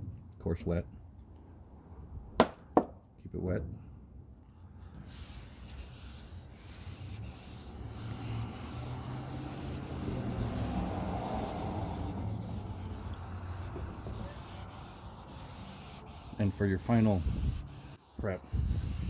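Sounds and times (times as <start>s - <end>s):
wet sandpaper rubbing paint: 4.8s - 19.0s.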